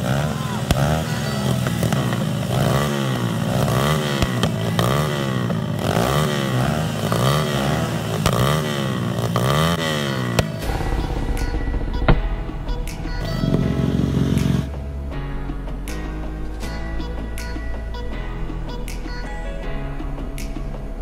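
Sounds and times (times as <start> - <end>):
motorbike engine revving: 0.0 - 14.8
exhaust pops: 0.0 - 15.2.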